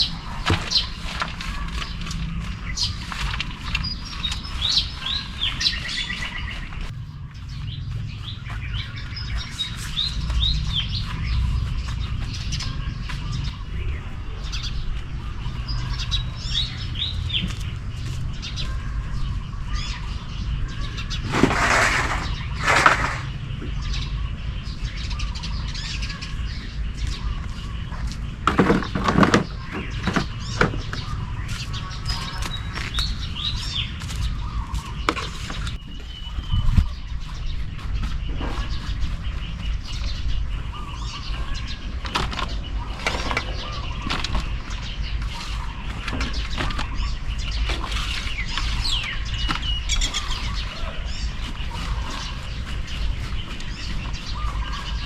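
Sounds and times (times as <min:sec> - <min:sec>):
steady low rumble: 0:00.0 - 0:28.4
small birds chirping: 0:00.0 - 0:55.0
sharp noises: 0:21.0 - 0:23.7
loud rustling bursts: 0:21.1 - 0:23.5.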